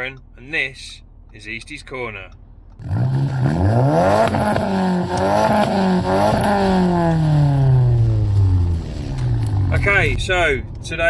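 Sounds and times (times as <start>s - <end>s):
car engine revving: 2.4s - 11.0s.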